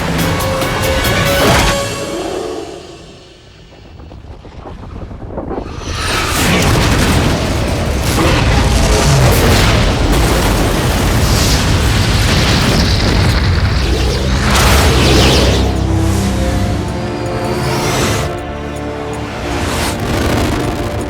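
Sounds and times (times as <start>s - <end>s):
orchestral film score: 0.0s - 4.8s, 5.5s - 21.0s
explosion booms and rumble: 3.7s - 17.3s.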